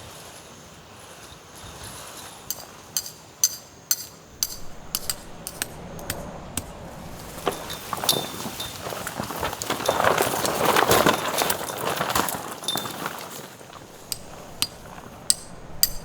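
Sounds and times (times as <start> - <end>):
sharp metal clinks: 2.5 - 9.1, 13.8 - 16.0
rustling and handling noise: 4.3 - 16.0.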